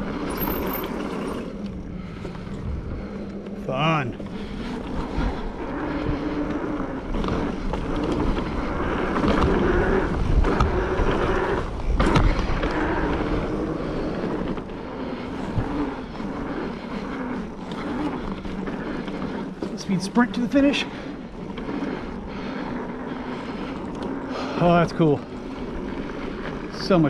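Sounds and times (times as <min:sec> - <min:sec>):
bike tyre and wind rush: 0:00.0 - 0:27.0.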